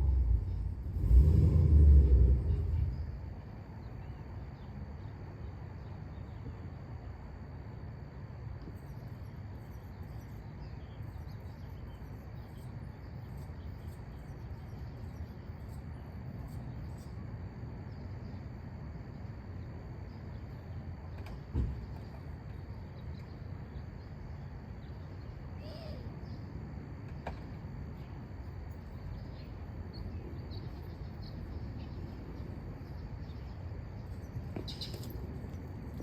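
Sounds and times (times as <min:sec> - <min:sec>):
steady low rumble: 0:00.0 - 0:36.0
high-pitched insect chirps: 0:08.8 - 0:17.2.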